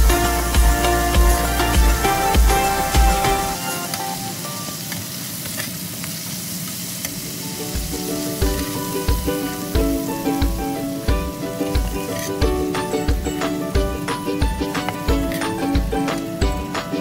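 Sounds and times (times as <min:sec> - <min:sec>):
background music with a beat: 0:00.0 - 0:04.3, 0:07.8 - 0:17.0
food sizzling in a wok: 0:00.0 - 0:17.0.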